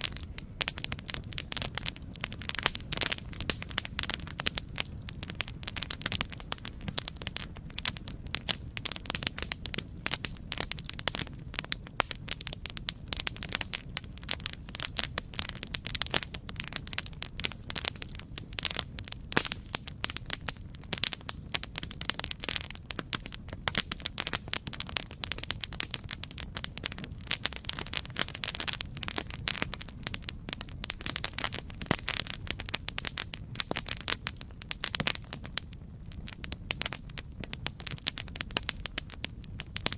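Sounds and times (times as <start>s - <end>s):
low rumble of flames: 0.0s - 39.9s
wood crackling and popping: 0.0s - 39.9s.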